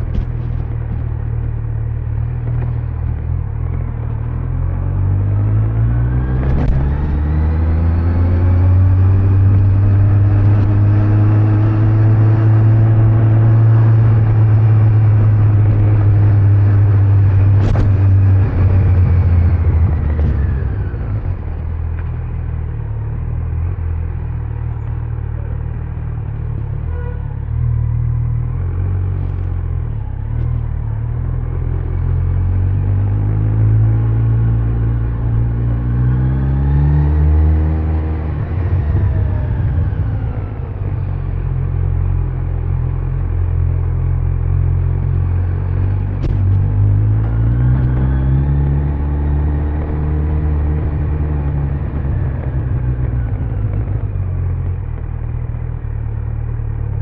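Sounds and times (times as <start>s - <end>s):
motorcycle engine running: 0.0s - 5.4s, 38.4s - 57.0s
road and wind noise: 0.0s - 57.0s.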